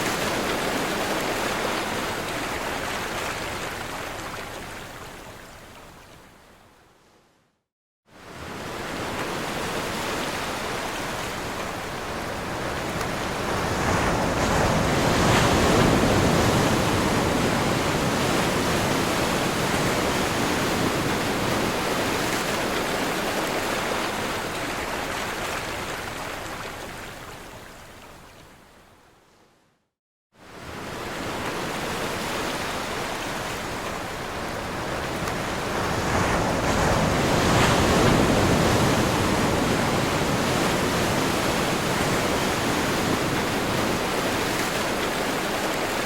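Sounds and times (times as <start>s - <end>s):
ocean waves breaking: 8.3s - 26.4s, 30.5s - 46.0s.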